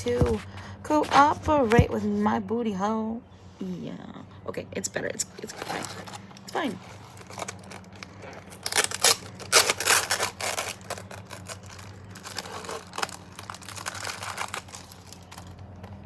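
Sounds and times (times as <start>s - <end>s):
steady low hum: 0.0s - 16.0s
plastic packaging crinkling and tearing: 5.4s - 16.0s.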